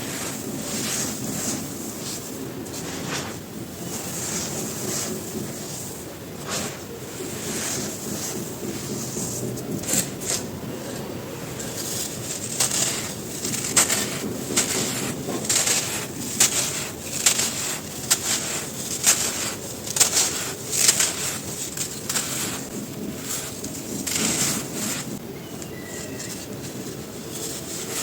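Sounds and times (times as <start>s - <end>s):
crumbling rustle: 0.0s - 28.0s
crunching and snapping: 11.5s - 28.0s.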